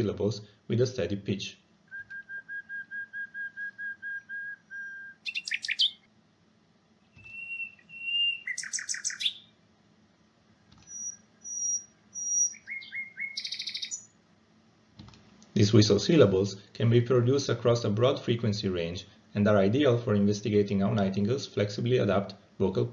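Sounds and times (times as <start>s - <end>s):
nightingale whistling song: 1.9s - 6.1s, 7.1s - 9.5s, 10.8s - 14.1s
bird trill: 2.2s - 6.1s, 7.1s - 9.6s, 10.8s - 14.2s.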